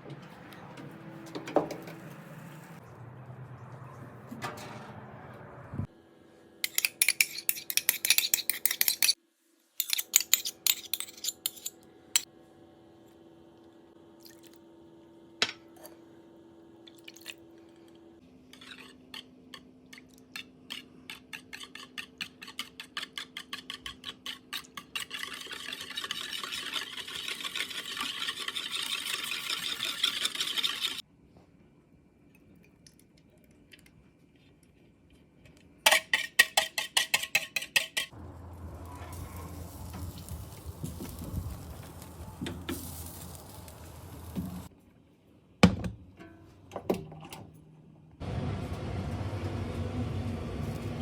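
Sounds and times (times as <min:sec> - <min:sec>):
hiss: 0:38.7 - 0:44.7.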